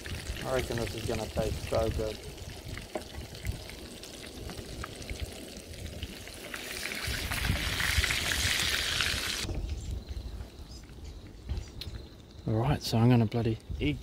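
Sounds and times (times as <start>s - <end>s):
fish frying in hot oil: 0.0s - 9.5s.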